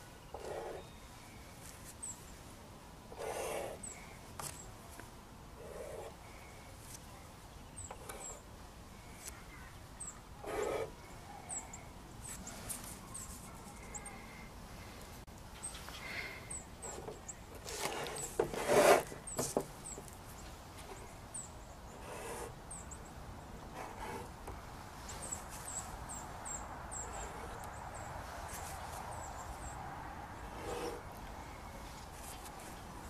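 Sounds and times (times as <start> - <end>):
small songbirds chirping: 3.2 - 5.0, 5.6 - 18.4, 19.2 - 33.0
paintbrushes rustling and clicking: 12.2 - 13.8, 16.8 - 21.0, 28.4 - 29.2.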